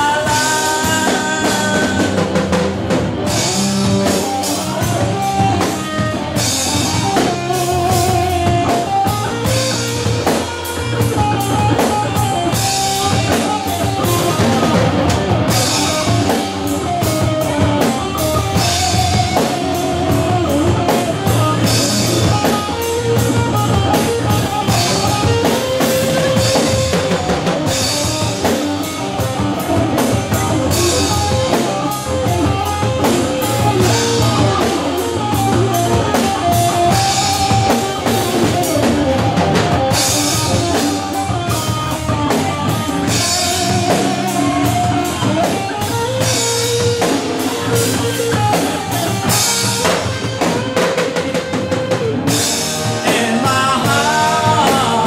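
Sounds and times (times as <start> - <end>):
rock song with drums and guitar: 0.0 - 55.0.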